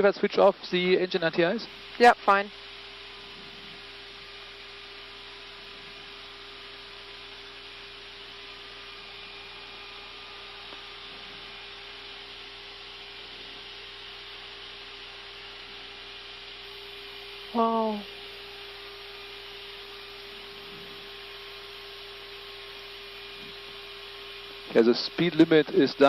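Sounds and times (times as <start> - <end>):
constant steady hum: 0.0 - 26.0
aircraft engine noise: 8.8 - 13.6, 24.7 - 26.0.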